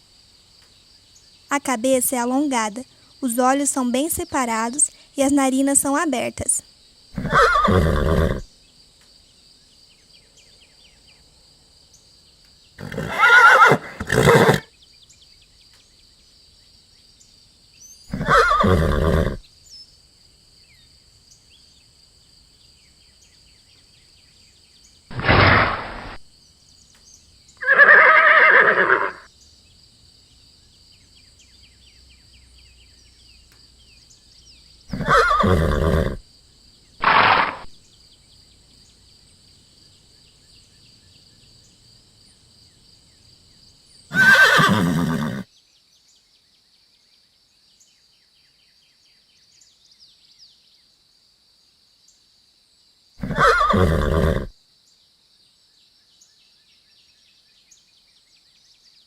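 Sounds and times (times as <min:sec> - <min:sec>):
horse neighing: 0:07.2 - 0:08.5, 0:12.8 - 0:14.7, 0:18.1 - 0:19.4, 0:25.1 - 0:26.2, 0:27.6 - 0:29.3, 0:34.9 - 0:36.2, 0:37.0 - 0:37.7, 0:44.1 - 0:45.5, 0:53.2 - 0:54.5.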